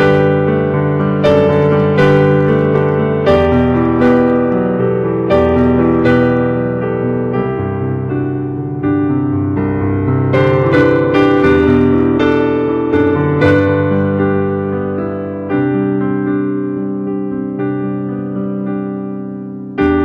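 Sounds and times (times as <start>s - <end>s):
piano chords ringing: 0.0s - 20.0s.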